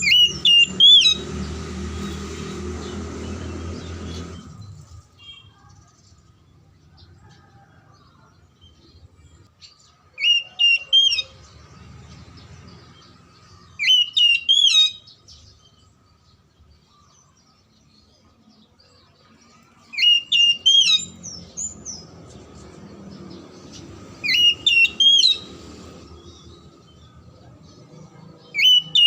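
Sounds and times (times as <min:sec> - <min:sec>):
bird whistled song: 0:00.0 - 0:02.2, 0:10.2 - 0:11.5, 0:13.5 - 0:15.8, 0:19.8 - 0:22.1, 0:24.2 - 0:26.6, 0:28.4 - 0:29.0.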